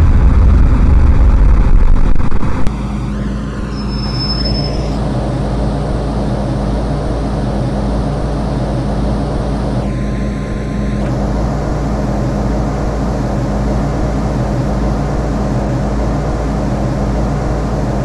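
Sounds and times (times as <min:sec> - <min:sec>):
train rumble and hum: 0:00.0 - 0:18.0
high whistle: 0:03.2 - 0:05.0.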